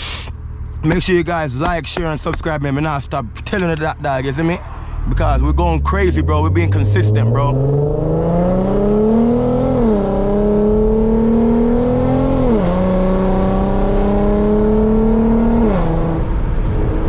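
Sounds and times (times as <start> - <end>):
car engine accelerating through gears: 4.6 - 17.0.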